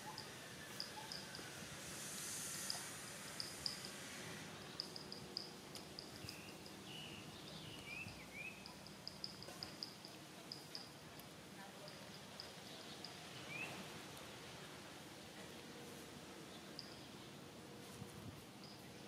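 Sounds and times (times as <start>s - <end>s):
soft hiss: 0.0s - 19.0s
small birds chirping: 4.6s - 10.9s, 11.9s - 13.9s.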